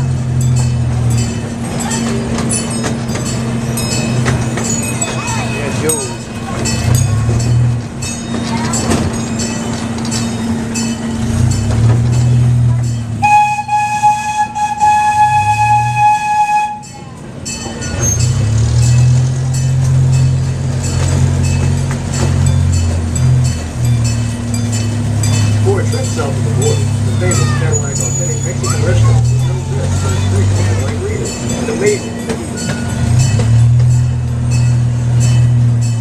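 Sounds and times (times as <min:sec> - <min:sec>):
train hum and rail clatter: 0:00.0 - 0:36.0
train horn blast: 0:13.2 - 0:16.9.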